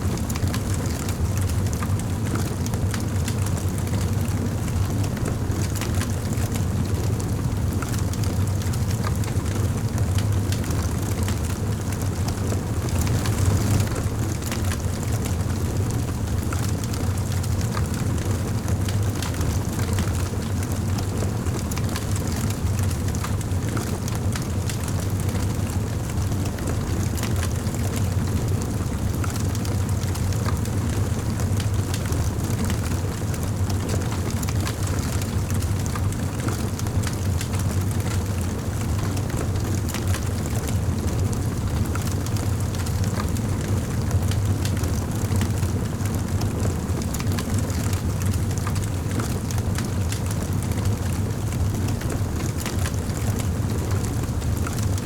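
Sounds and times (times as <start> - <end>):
wood fire crackling: 7.3 - 21.2, 42.8 - 55.0.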